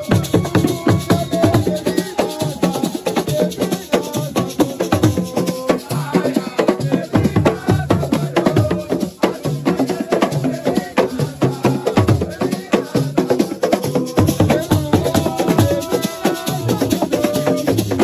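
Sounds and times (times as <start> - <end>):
fast dense drumming: 0.0 - 18.0.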